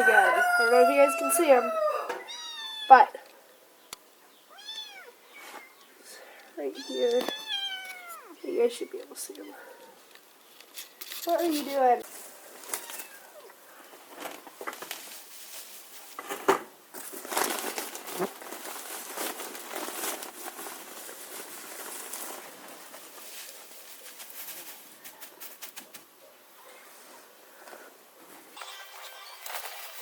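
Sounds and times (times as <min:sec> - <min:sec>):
bedding rustling and crinkling: 0:10.3 - 0:25.9.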